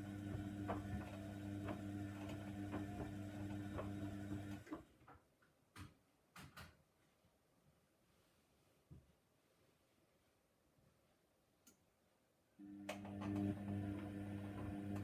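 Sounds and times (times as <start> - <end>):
washing machine motor humming: 0.0 - 4.8, 12.6 - 15.0.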